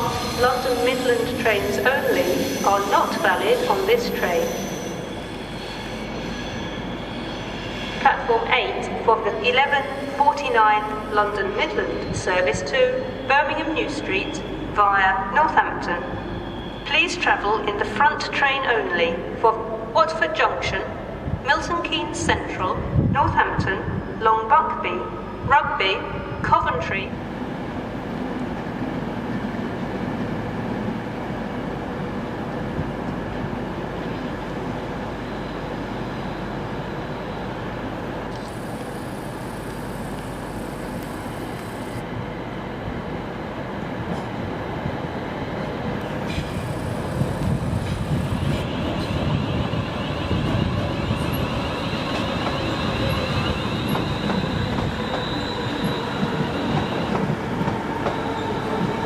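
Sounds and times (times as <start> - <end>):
train rumbling: 26.1 - 59.0
steady whine: 38.2 - 42.1.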